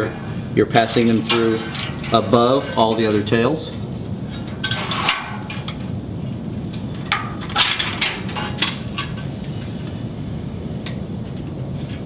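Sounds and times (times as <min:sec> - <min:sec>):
steady low hum: 0:00.0 - 0:12.0
cable clicks and rustles: 0:00.9 - 0:10.0.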